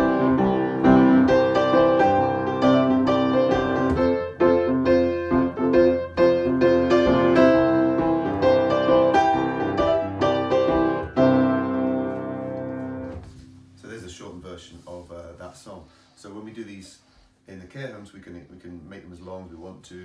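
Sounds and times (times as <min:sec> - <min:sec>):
piano chords and melody: 0:00.0 - 0:13.8.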